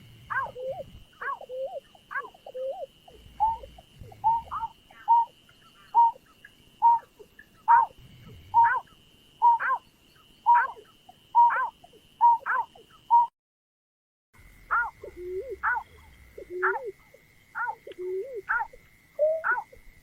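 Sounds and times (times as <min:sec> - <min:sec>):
bird hooting calls: 0:00.0 - 0:13.3, 0:14.7 - 0:20.0
faint high-pitched whine: 0:00.0 - 0:13.3.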